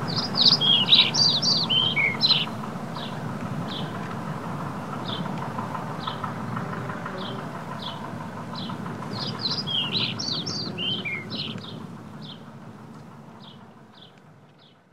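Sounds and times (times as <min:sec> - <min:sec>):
birds chirping: 0:00.0 - 0:14.9
low background rumble: 0:00.0 - 0:14.9.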